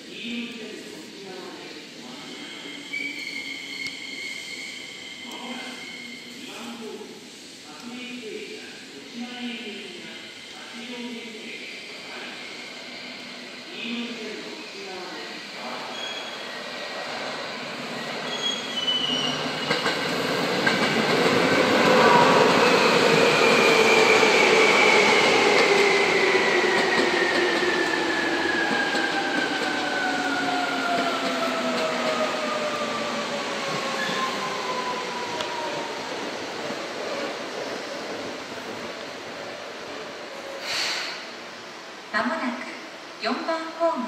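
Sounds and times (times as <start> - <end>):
falling whine of train: 0.8 - 43.5
electric train braking: 15.6 - 36.0.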